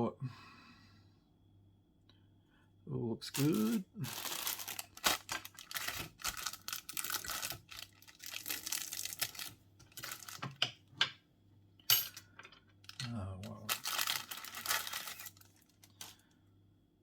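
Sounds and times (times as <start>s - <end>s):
plastic bag crinkling: 3.3s - 10.6s, 12.8s - 16.3s.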